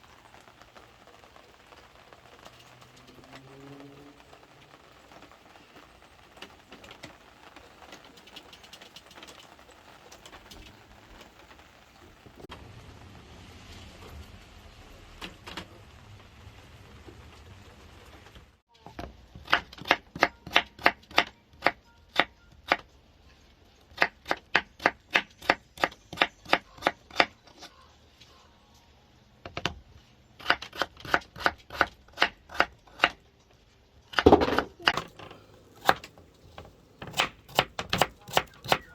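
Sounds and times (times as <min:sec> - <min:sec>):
faint steady hiss: 0:00.0 - 0:19.3, 0:34.8 - 0:38.9
knife chopping vegetables: 0:35.8 - 0:38.9.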